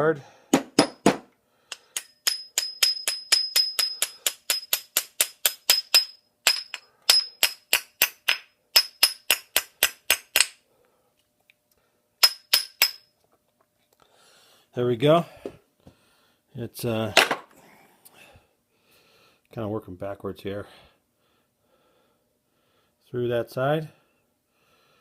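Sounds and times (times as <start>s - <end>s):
hammer tapping metal pin: 0.5s - 10.6s, 12.2s - 13.1s.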